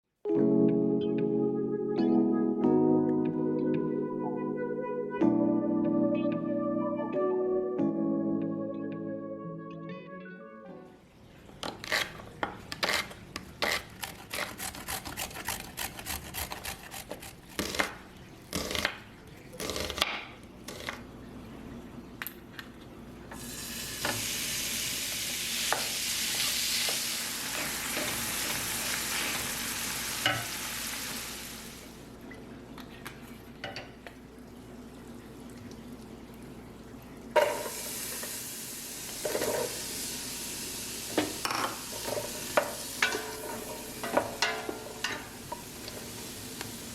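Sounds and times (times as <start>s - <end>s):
food sizzling in hot oil: 23.4s - 32.0s, 37.4s - 46.9s
utensil scraping in a pan: 41.2s - 46.2s.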